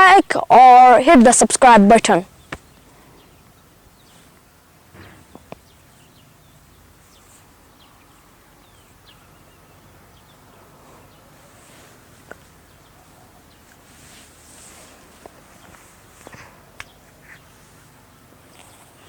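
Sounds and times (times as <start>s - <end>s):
birds chirping: 0.0s - 19.0s
soft rustle: 2.4s - 8.4s, 10.6s - 19.0s.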